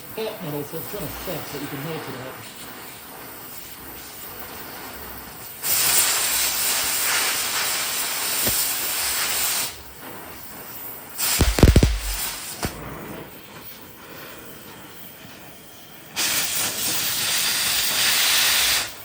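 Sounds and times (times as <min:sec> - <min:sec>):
gas cutting torch hissing: 0:00.3 - 0:09.8, 0:11.1 - 0:12.9, 0:16.1 - 0:19.0
sharp clicks: 0:11.4 - 0:12.4.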